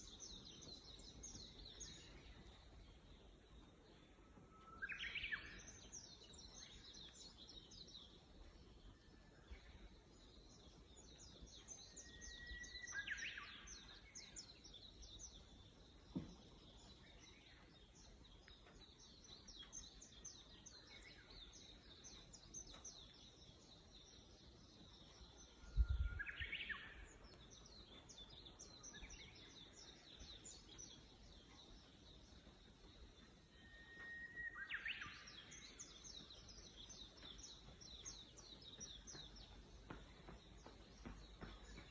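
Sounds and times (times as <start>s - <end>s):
birds chirping: 0.0s - 41.9s
low thump: 16.1s - 16.6s.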